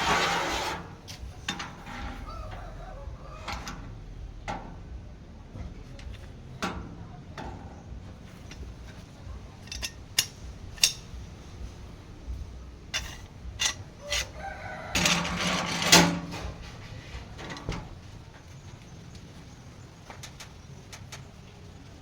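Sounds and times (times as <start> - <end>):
rooster crowing: 1.8 - 4.0, 14.0 - 16.2
sharp clicks and knocks: 8.4 - 11.2.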